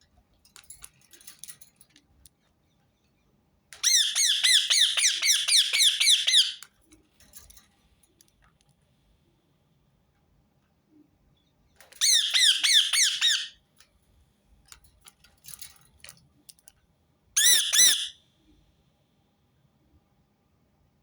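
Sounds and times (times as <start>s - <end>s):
parakeet screeching: 3.8s - 6.6s, 12.0s - 13.6s, 17.4s - 18.1s.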